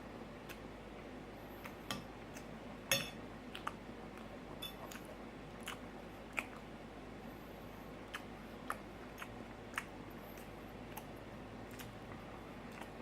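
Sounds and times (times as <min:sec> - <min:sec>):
cutlery clinking on plate: 0:02.9 - 0:03.2, 0:04.6 - 0:04.9.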